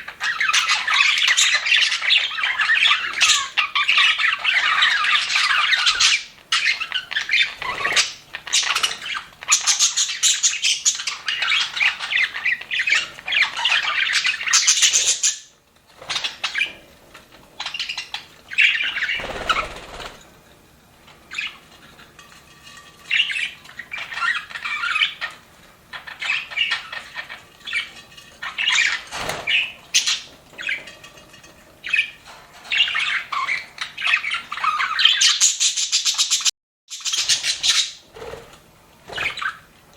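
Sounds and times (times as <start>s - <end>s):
budgerigars chattering: 0.0s - 16.8s, 17.6s - 20.1s, 32.7s - 38.3s.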